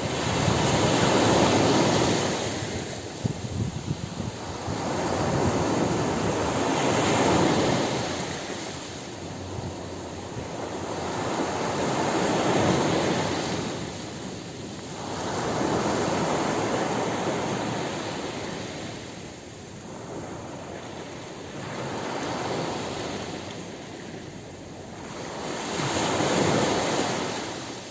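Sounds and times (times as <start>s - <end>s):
ocean waves breaking on beach: 0.0s - 27.9s.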